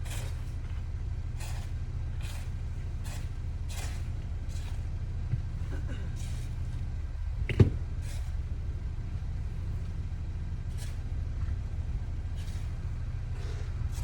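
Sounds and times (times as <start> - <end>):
vehicle engine idling: 0.0 - 14.0
short hissing swishes: 1.4 - 4.8, 10.7 - 11.0, 12.4 - 14.0.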